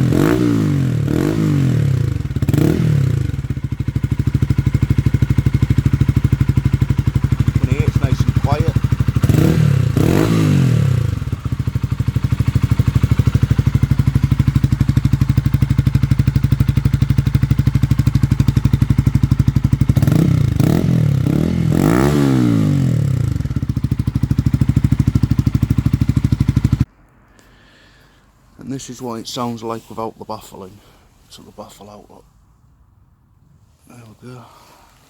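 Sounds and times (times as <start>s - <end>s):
motorcycle engine idling and revving: 0.0s - 26.9s.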